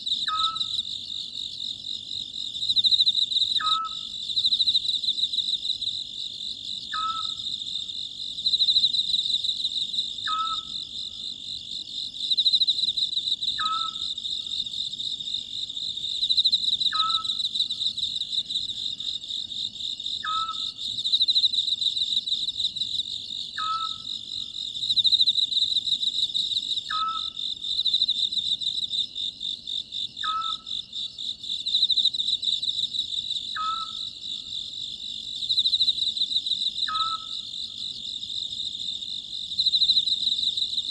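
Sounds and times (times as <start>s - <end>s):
pulsing insect chorus: 0.0s - 40.9s
owl calling: 0.3s - 0.7s, 3.6s - 4.0s, 6.9s - 7.4s, 10.3s - 10.7s, 13.6s - 14.1s, 16.9s - 17.4s, 20.2s - 20.7s, 23.6s - 24.0s, 26.9s - 27.3s, 30.2s - 30.6s, 33.6s - 34.1s, 36.9s - 37.4s.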